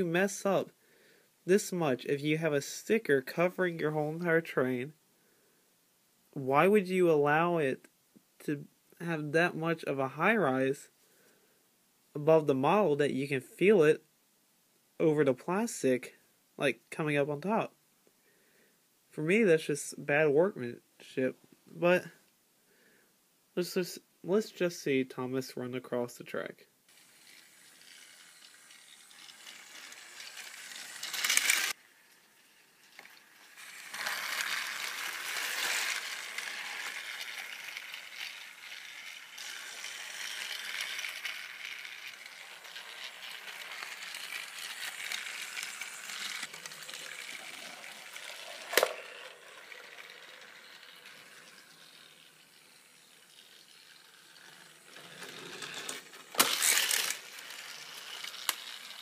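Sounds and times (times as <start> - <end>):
toy train motor whirring: 0.0 - 0.5, 26.9 - 59.0
toy train clatter: 26.9 - 59.0.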